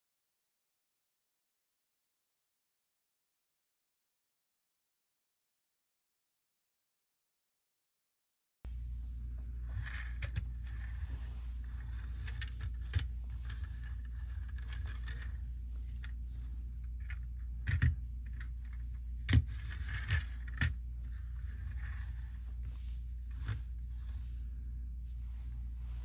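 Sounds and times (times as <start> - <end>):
steady low hum: 8.7 - 26.0.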